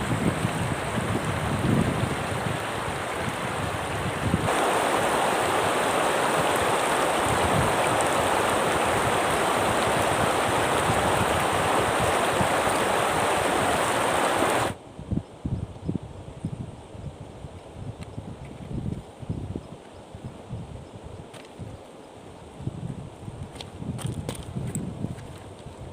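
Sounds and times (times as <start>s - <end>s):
water rushing: 0.0s - 14.8s.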